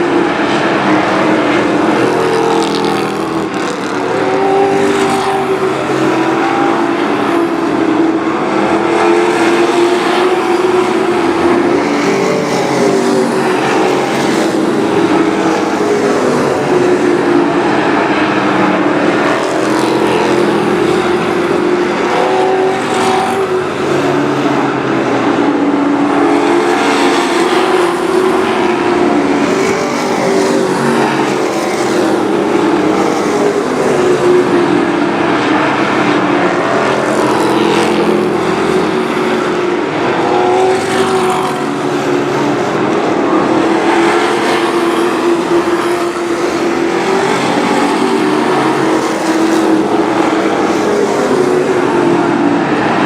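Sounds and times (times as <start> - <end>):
race truck engines: 0.0 - 53.0.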